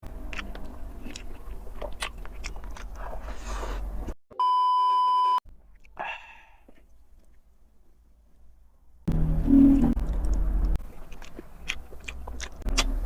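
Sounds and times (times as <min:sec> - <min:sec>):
chewing with small clicks: 0:00.2 - 0:03.2, 0:06.6 - 0:07.5, 0:10.0 - 0:13.0
steady electronic beep: 0:09.1 - 0:10.0.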